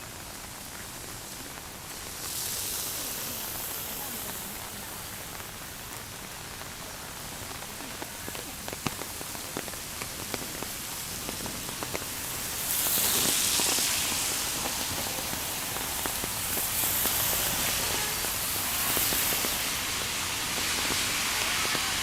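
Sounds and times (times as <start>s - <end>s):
close raindrops ticking: 0.0s - 22.0s
rain falling: 0.0s - 22.0s.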